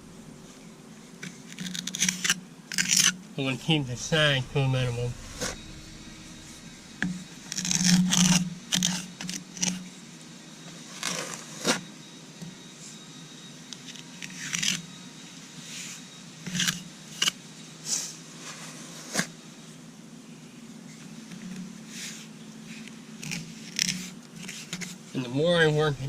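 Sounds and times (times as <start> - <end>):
low steady hum: 0.0 - 10.8.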